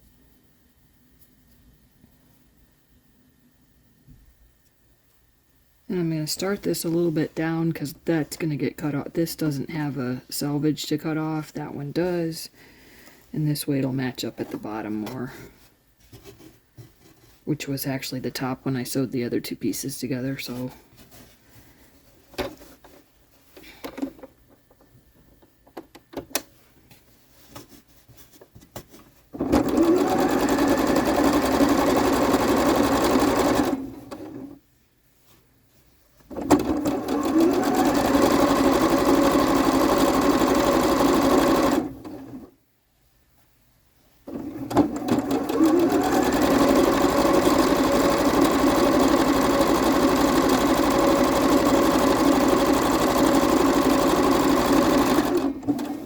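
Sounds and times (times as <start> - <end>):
sewing machine stitching: 29.3 - 34.6, 36.3 - 42.5, 44.3 - 56.0.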